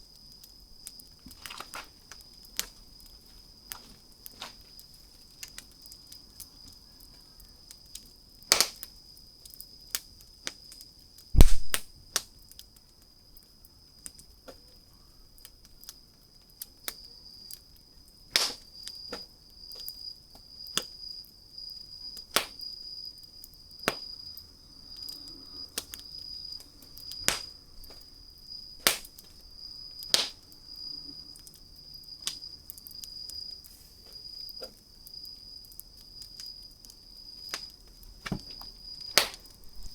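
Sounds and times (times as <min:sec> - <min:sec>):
wood fire crackling and popping: 0:00.0 - 0:39.9
deep thump: 0:11.4 - 0:11.8, 0:38.2 - 0:38.6.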